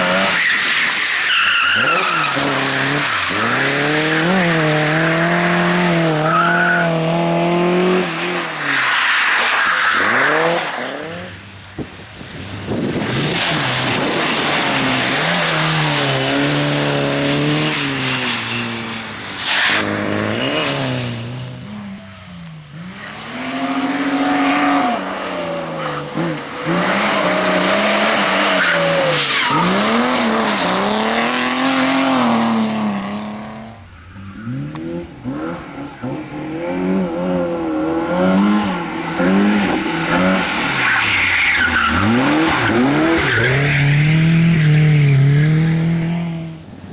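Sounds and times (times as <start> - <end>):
car engine revving: 12.6 - 46.6.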